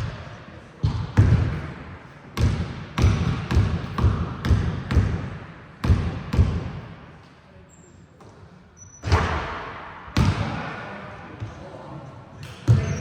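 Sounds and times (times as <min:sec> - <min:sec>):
basketball bouncing on hard court: 0:00.8 - 0:01.7, 0:02.4 - 0:06.8.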